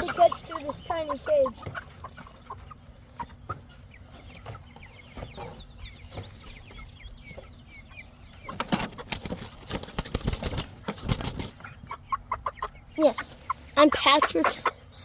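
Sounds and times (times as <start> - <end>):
chicks peeping and clucking: 0.0 - 15.0
wings flapping against cage: 8.5 - 11.7.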